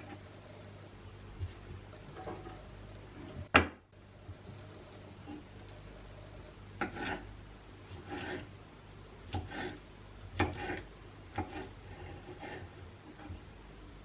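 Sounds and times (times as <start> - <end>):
knife cutting on wooden board: 6.8 - 7.3, 7.9 - 8.5, 9.3 - 9.8, 10.4 - 13.4.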